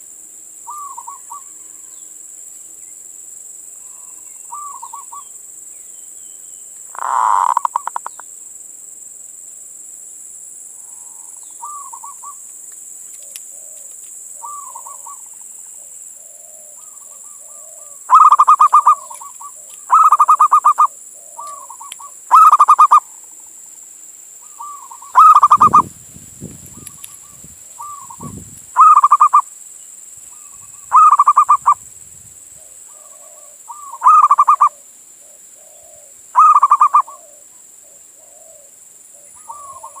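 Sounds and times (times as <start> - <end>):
dove cooing: 0.7 - 1.6, 3.9 - 5.3, 6.9 - 8.2, 10.9 - 12.4, 13.2 - 23.2, 24.4 - 25.9, 26.7 - 29.4, 30.3 - 31.8, 32.6 - 40.0.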